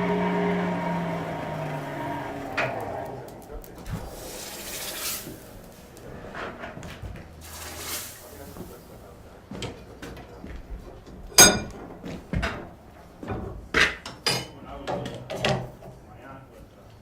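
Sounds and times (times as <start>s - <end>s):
hammer striking metal: 11.4s - 11.8s.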